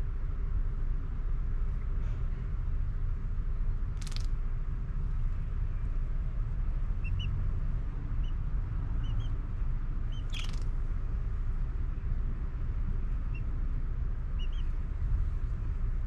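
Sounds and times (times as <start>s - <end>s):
steady low rumble: 0.0s - 16.0s
high bird chirps: 7.0s - 7.4s, 10.1s - 10.6s.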